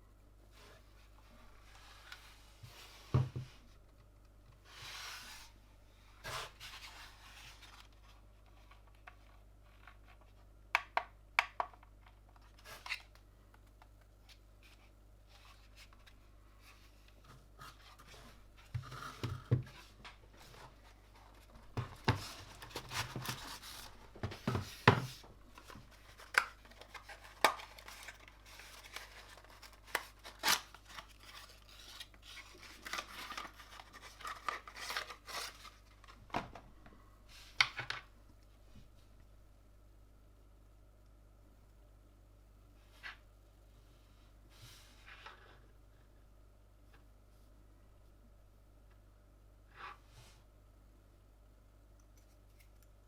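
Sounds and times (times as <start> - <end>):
packaging rustling: 20.4 - 36.3.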